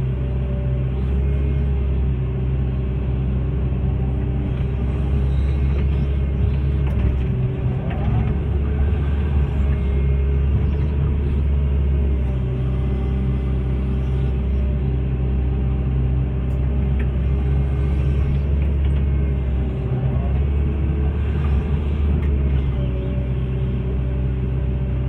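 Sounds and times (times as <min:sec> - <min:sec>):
excavator diesel engine rumbling: 0:00.0 - 0:25.0.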